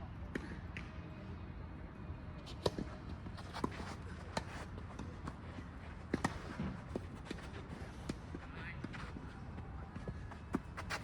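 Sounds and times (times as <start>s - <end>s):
tennis balls struck and bouncing: 2.5s - 11.0s.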